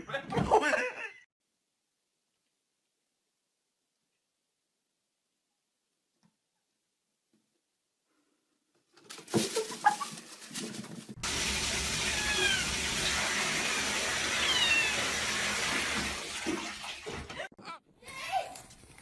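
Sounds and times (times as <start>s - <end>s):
running water: 11.2s - 17.5s
high falling calls: 11.5s - 15.3s
cat meowing: 12.0s - 12.8s, 14.3s - 15.1s.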